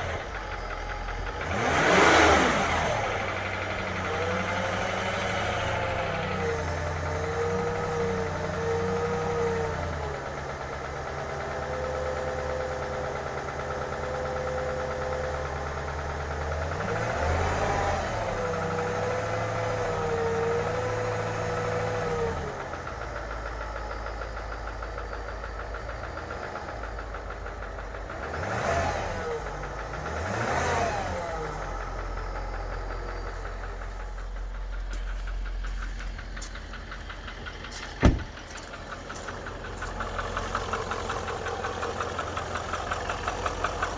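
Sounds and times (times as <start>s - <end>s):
car engine idling with knock: 2.6s - 17.1s, 22.6s - 28.7s, 31.3s - 43.9s.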